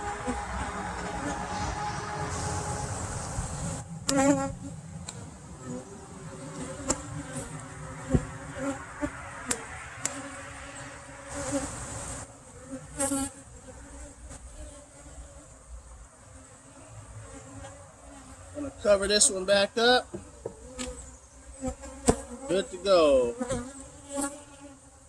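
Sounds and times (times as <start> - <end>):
bee flying past microphone: 0.0 - 15.5
bees buzzing: 0.0 - 25.0.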